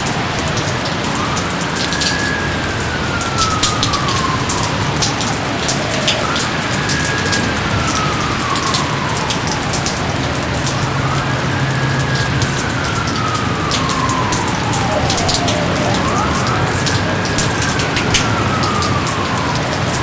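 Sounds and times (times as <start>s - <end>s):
heavy rain pattering: 0.0s - 20.0s
high wailing tone: 13.1s - 20.0s.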